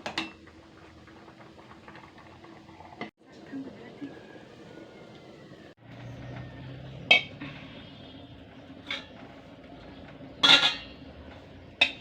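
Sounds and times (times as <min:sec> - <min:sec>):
cutlery clinking against dish: 0:10.4 - 0:11.0.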